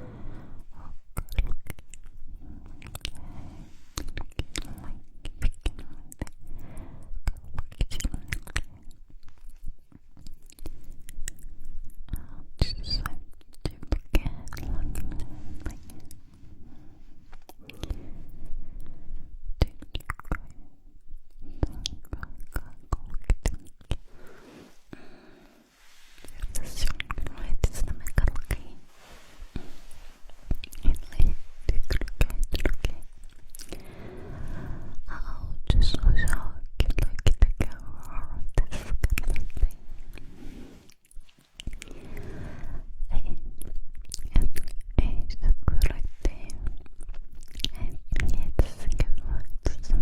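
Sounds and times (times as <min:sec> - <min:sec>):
soft breathing: 0:00.0 - 0:07.4, 0:08.0 - 0:35.7, 0:37.8 - 0:43.1
wet mouth clicks and smacks: 0:01.1 - 0:02.2, 0:04.0 - 0:06.4, 0:07.2 - 0:11.5, 0:19.6 - 0:20.6, 0:21.6 - 0:24.0, 0:30.6 - 0:33.8, 0:41.0 - 0:41.9, 0:43.6 - 0:45.1, 0:45.7 - 0:49.4
soft airy hiss: 0:24.0 - 0:35.2, 0:39.3 - 0:42.9.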